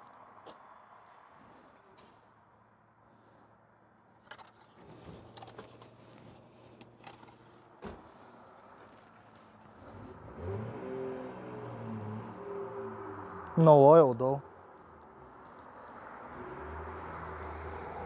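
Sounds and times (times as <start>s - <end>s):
faint car engine idling: 4.9s - 11.1s.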